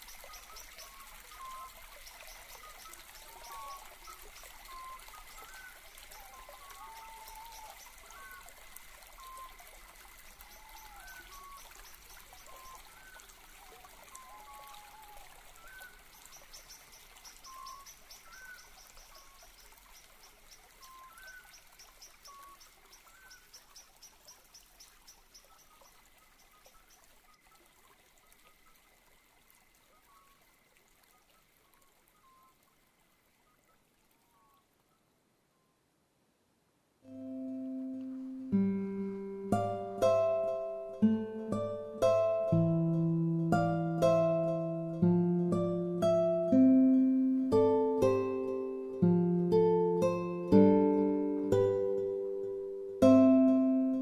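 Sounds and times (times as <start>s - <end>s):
rainwater trickling: 0.0s - 34.8s, 47.5s - 53.2s.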